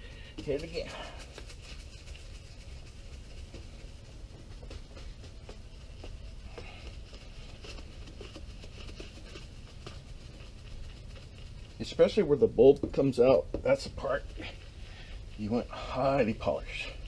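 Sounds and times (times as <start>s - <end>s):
sandpaper rubbing on plastic: 0.4s - 12.4s.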